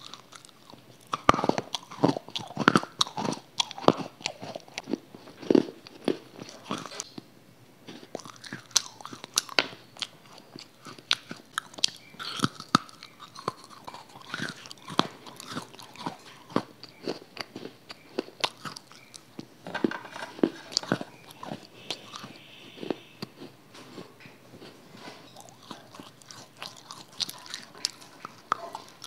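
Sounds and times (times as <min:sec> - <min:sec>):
person chewing crisp food: 0:00.0 - 0:29.0.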